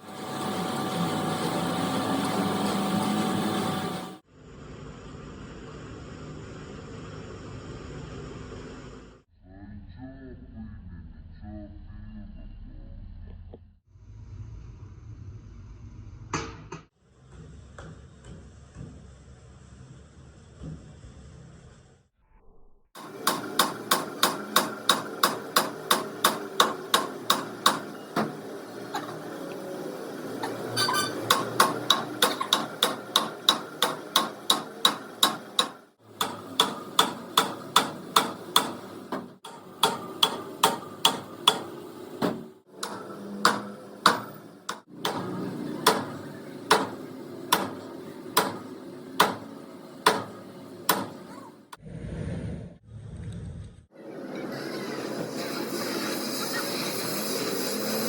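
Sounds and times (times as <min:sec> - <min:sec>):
hammer on metal: 0:23.0 - 0:28.4, 0:30.4 - 0:51.6.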